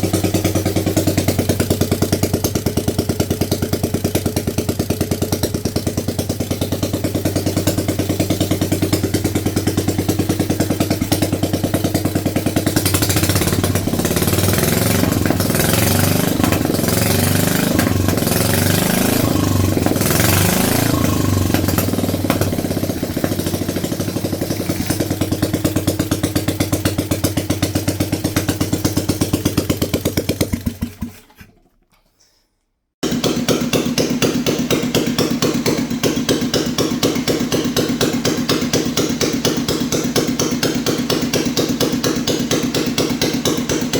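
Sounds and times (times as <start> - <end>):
motorcycle engine revving: 0.0 - 31.4, 33.0 - 43.9.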